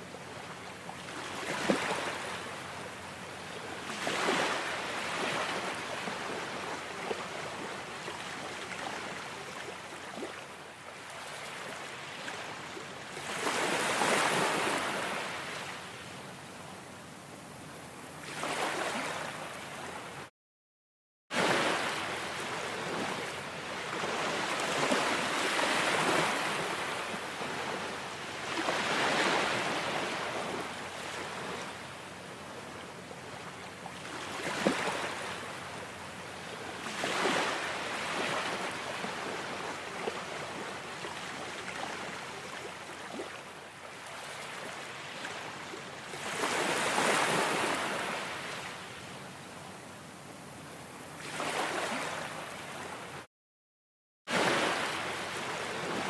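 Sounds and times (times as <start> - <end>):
ocean waves washing in: 21.3 - 32.3, 54.3 - 56.0.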